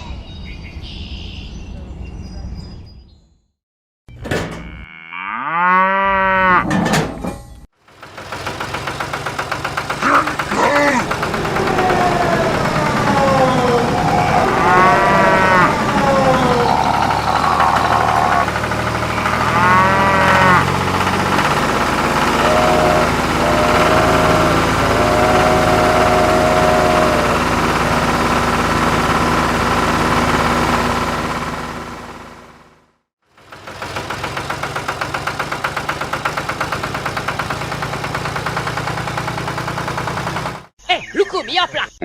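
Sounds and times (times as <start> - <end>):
cattle mooing: 4.5 - 6.8, 10.1 - 27.8
engine running: 7.8 - 40.7.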